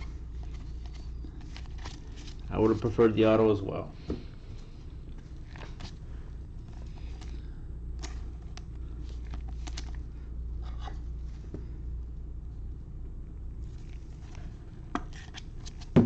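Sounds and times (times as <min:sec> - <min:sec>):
steady low hum: 0:00.0 - 0:16.0
cards clicking and rustling: 0:00.4 - 0:02.5, 0:08.0 - 0:10.0.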